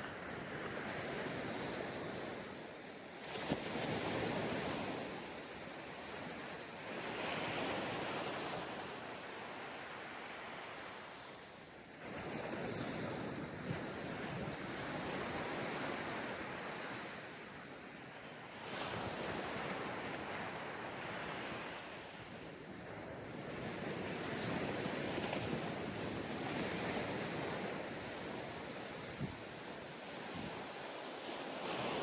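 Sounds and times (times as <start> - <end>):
ocean waves breaking on beach: 0.0 - 32.0
wind noise on microphone: 18.6 - 32.0.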